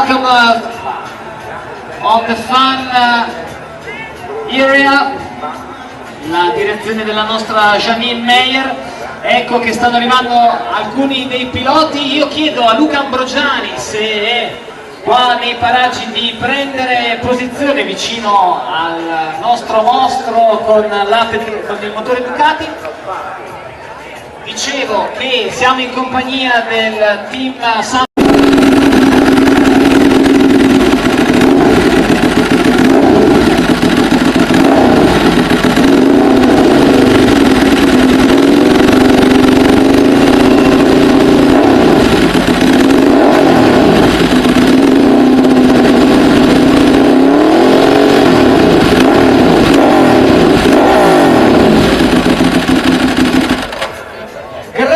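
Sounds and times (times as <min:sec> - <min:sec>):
motorcycle engine revving: 0:28.2 - 0:54.0.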